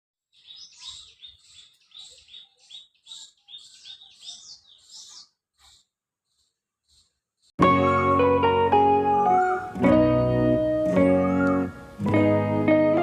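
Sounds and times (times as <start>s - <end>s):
birds chirping: 0.2s - 8.4s.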